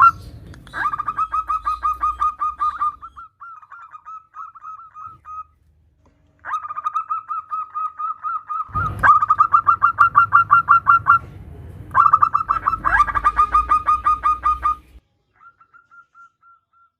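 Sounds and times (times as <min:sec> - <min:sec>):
dove cooing: 0:00.0 - 0:05.6, 0:06.4 - 0:11.3, 0:11.9 - 0:16.9
low rumble: 0:08.7 - 0:15.0.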